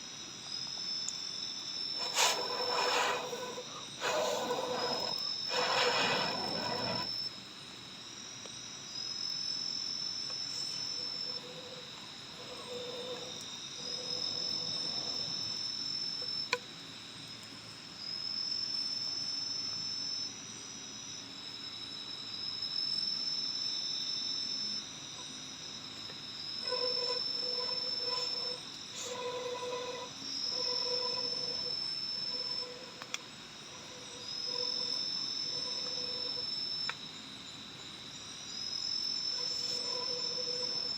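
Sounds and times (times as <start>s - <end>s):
insect low pulsing call: 0.0s - 7.5s, 8.2s - 40.9s
insects high-pitched chirring: 0.0s - 40.9s
insect high drawn-out trill: 0.4s - 7.6s, 8.2s - 40.9s.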